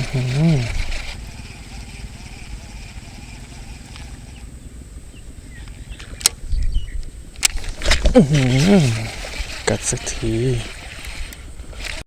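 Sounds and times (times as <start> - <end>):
strong wind buffeting microphone: 0.0 - 12.0
sharp clicks: 5.6 - 6.4, 7.0 - 12.0.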